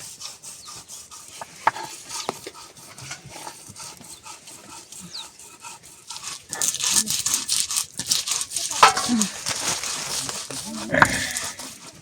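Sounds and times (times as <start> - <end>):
rasping strokes on grinding stone: 0.0 - 12.0
stone knocking: 8.8 - 9.3.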